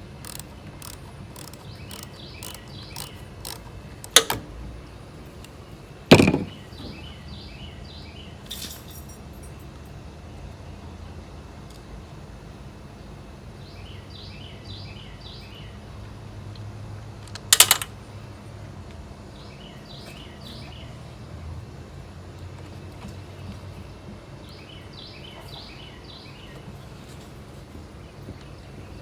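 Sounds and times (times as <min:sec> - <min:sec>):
songbird chirping: 0:00.2 - 0:04.2, 0:13.6 - 0:15.9, 0:23.2 - 0:26.8.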